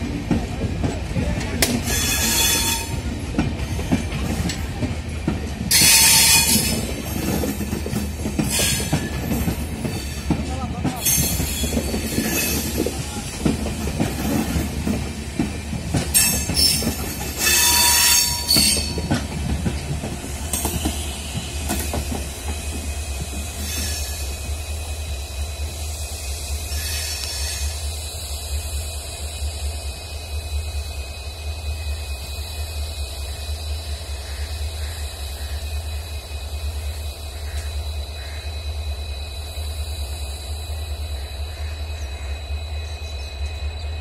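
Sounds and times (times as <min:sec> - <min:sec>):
train wheels rumbling and clacking: 0:00.0 - 0:44.0
train wheels squealing: 0:01.8 - 0:04.8, 0:05.5 - 0:44.0.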